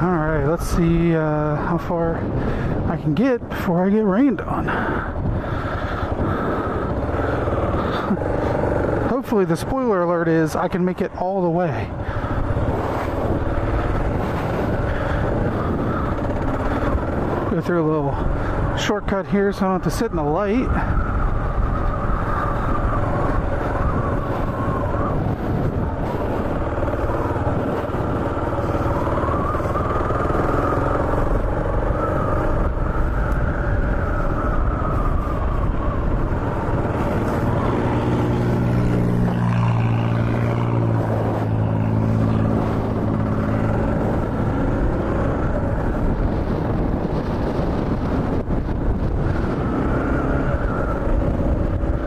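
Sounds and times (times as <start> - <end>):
wind and road noise: 0.0 - 52.0
motorcycle engine running: 4.7 - 9.6, 11.6 - 18.9, 20.3 - 52.0.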